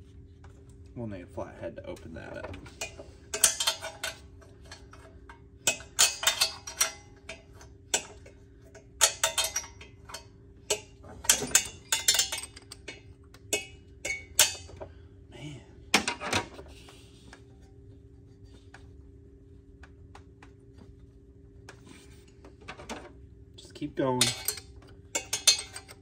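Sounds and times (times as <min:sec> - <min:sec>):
faint steady hum: 0:00.0 - 0:26.0
metal hand tools clinking: 0:24.1 - 0:26.0.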